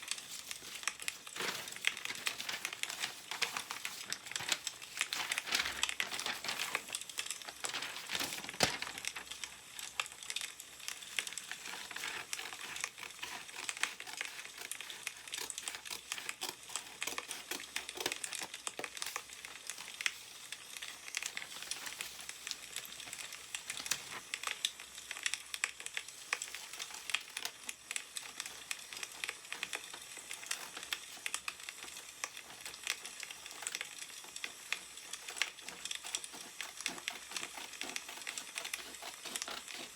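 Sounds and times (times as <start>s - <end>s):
newspaper rustling: 0.0s - 9.6s, 11.2s - 24.2s, 35.0s - 39.9s
firewood crackling: 0.0s - 14.8s.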